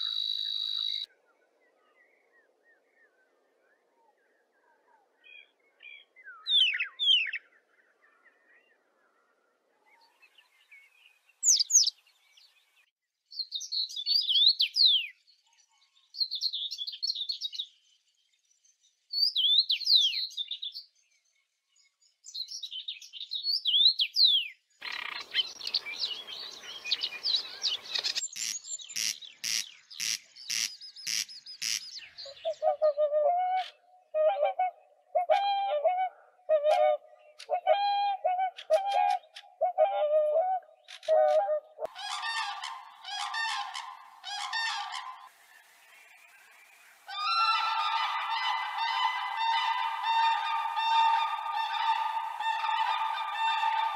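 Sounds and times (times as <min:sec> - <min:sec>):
bird sharp calls: 0:00.0 - 0:01.1, 0:23.7 - 0:33.0, 0:40.8 - 0:45.3, 0:47.0 - 0:53.9
bird twittering song: 0:00.0 - 0:48.4
swans trumpeting calls: 0:41.8 - 0:45.3, 0:47.1 - 0:53.9.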